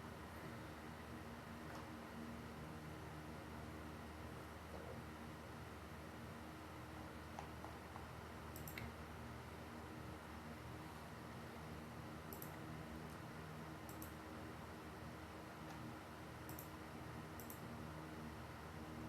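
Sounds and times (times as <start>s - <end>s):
low room hum: 0.0s - 19.0s
faint sharp clicks: 8.6s - 8.9s, 12.3s - 12.6s, 13.9s - 14.2s, 16.5s - 16.7s, 17.4s - 17.6s.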